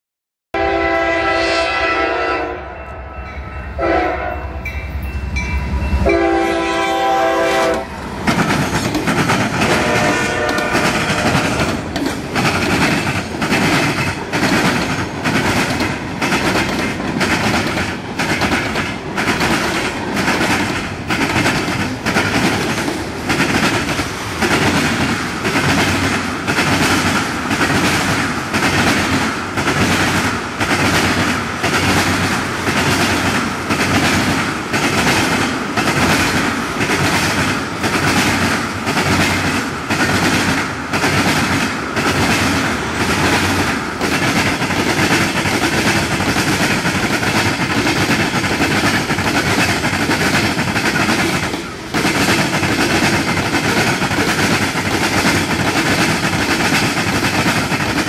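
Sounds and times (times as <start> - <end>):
locomotive air horn blasts: 0.6 - 4.6, 6.0 - 7.9, 9.6 - 11.6.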